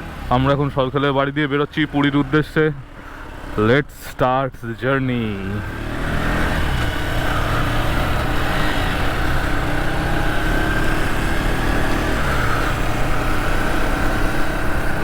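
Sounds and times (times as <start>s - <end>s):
motorcycle engine running: 5.0s - 15.0s.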